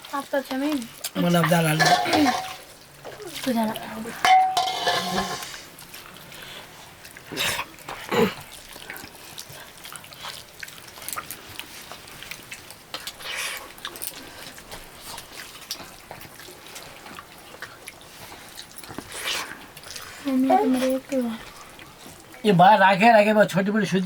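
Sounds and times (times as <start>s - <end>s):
plates clicking and knocking: 1.4s - 2.7s, 4.2s - 5.5s.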